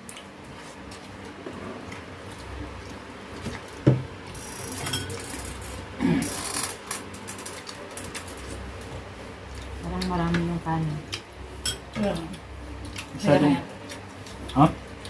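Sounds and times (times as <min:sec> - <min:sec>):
dishes and utensils clattering: 0:04.8 - 0:05.3.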